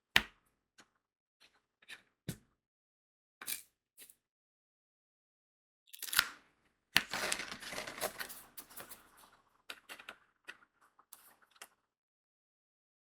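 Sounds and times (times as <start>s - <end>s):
small crystals rattling in plastic tray: 7.2s - 8.6s.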